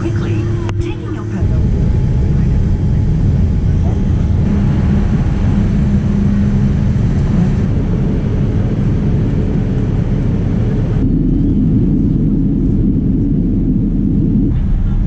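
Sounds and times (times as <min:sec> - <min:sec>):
aircraft engine drone in cabin: 0:00.0 - 0:15.0.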